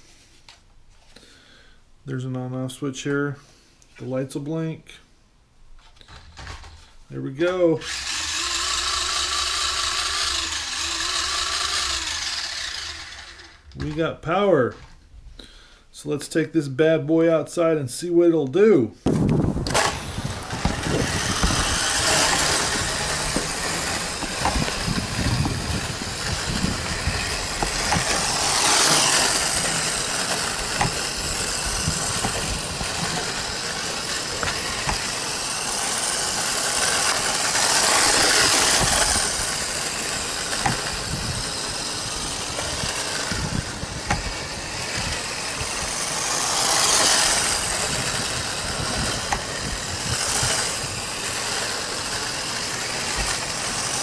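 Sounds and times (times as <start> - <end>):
rc truck motor and tyre hiss: 7.8 - 13.7, 19.1 - 54.0.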